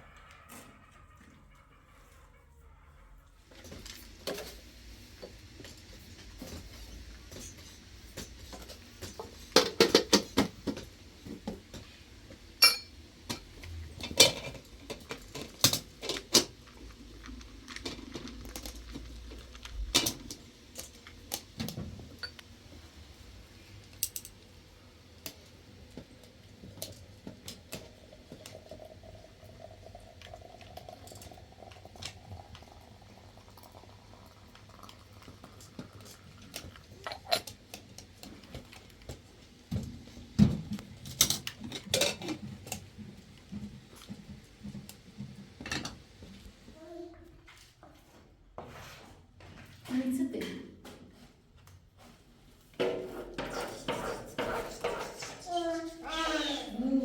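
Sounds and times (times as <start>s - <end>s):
hard objects clinking and knocking: 12.6s - 12.9s, 37.0s - 37.5s.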